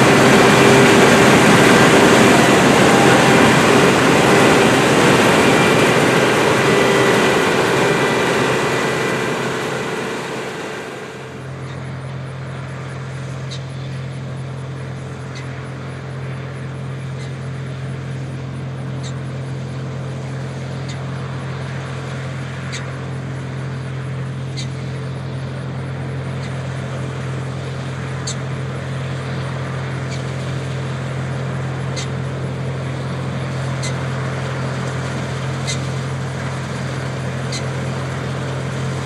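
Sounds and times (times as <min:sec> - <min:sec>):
low hum: 0:00.0 - 0:11.6
combine harvester engine and threshing: 0:00.0 - 0:13.9, 0:26.0 - 0:39.0.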